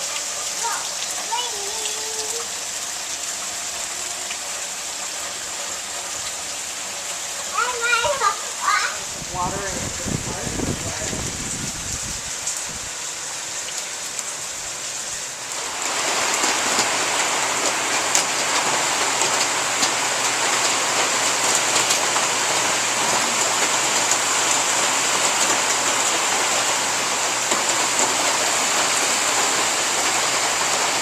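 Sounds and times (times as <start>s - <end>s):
steady rain hiss: 0.0s - 31.0s
raindrop ticks: 15.9s - 22.7s.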